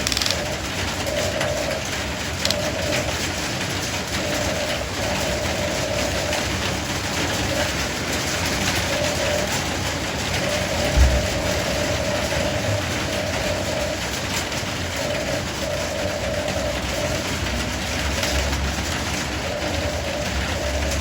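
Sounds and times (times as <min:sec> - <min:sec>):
small electric motors whining: 0:00.0 - 0:00.6
noisy background: 0:00.0 - 0:21.0
low thump: 0:11.0 - 0:11.3.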